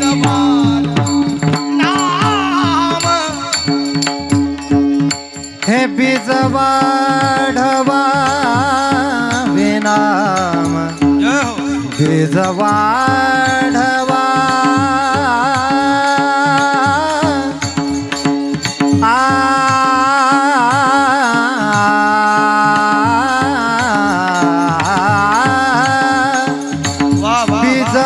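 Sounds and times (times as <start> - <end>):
person singing ornamented notes: 0.0 - 18.2, 19.0 - 28.0
drum beats: 0.0 - 28.0.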